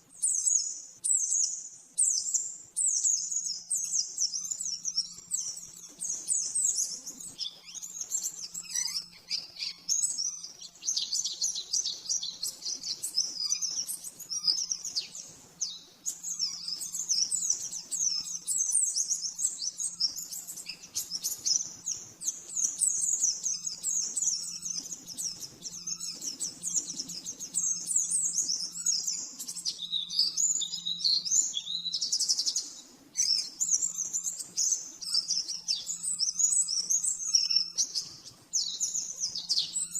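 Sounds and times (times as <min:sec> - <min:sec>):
bird chirps and trills: 0:00.2 - 0:39.9.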